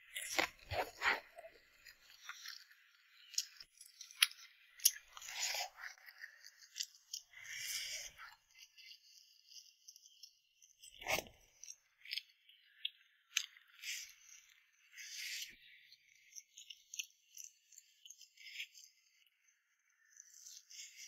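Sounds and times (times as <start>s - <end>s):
crunchy chewing: 0.1s - 10.1s.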